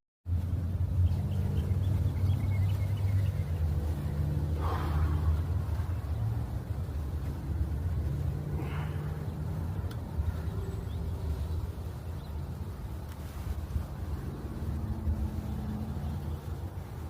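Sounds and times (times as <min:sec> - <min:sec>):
light rail train rumbling: 0:00.7 - 0:11.9.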